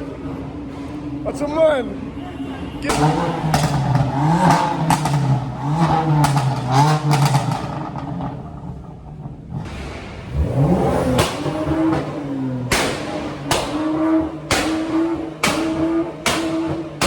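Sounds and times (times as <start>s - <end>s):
car engine revving: 2.9s - 17.0s
sharp cracks: 9.6s - 17.0s.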